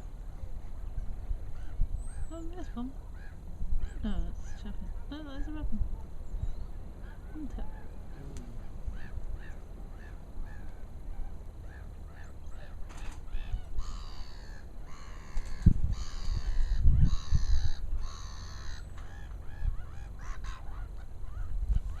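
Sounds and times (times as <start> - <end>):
birds chirping: 0.0 - 22.0
harsh bird calls: 6.3 - 22.0.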